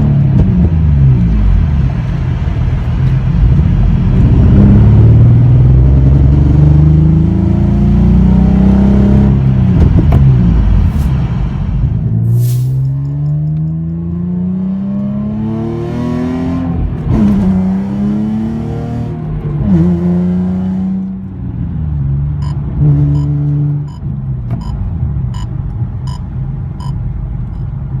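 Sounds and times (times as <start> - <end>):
car engine accelerating: 0.0 - 28.0
regular ticking: 22.4 - 22.6, 23.2 - 27.7.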